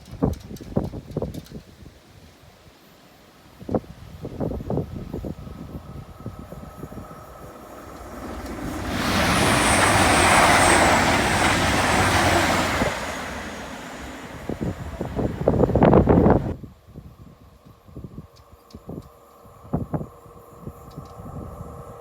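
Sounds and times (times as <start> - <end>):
train rushing past: 4.3 - 16.6.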